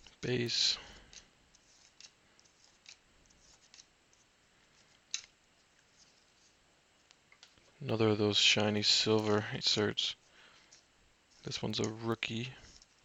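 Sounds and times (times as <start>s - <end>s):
trading cards rustling: 0.0s - 6.6s.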